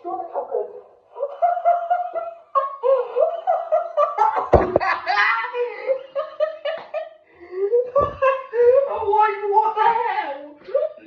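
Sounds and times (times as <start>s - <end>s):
person laughing hard: 1.2s - 7.0s
loud thud: 4.5s - 5.0s.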